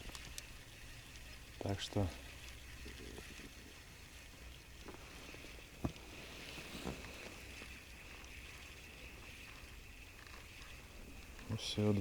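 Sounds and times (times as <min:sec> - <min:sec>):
low background hiss: 0:00.0 - 0:12.0
faint knocks on boat: 0:05.8 - 0:06.0.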